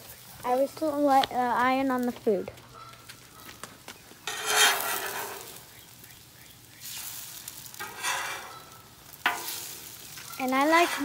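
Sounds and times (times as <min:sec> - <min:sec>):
eggs sizzling on a griddle: 0:00.0 - 0:11.0
metal spatula scraping steel: 0:04.2 - 0:05.6, 0:07.7 - 0:11.0.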